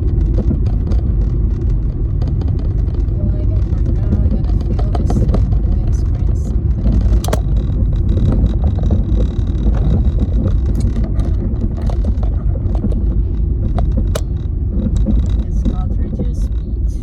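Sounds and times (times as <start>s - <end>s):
car engine and tyre rumble: 0.0s - 17.0s
light clicks and knocks: 0.1s - 16.8s.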